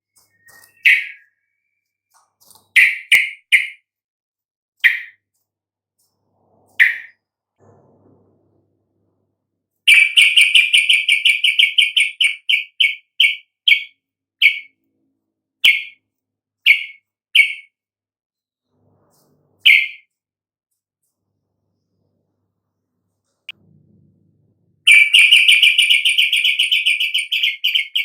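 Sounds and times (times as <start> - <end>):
bird chirping: 0.0 - 3.8, 4.8 - 5.2, 6.7 - 7.2, 9.9 - 14.8, 15.6 - 16.0, 16.6 - 17.7, 19.1 - 20.1, 24.8 - 28.0.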